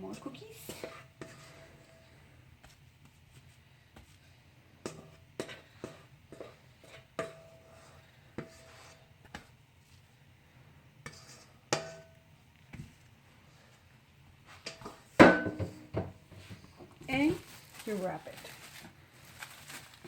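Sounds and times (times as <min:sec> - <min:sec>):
utensil scraping mixing bowl: 0:00.0 - 0:02.8, 0:04.8 - 0:09.5, 0:11.0 - 0:12.1.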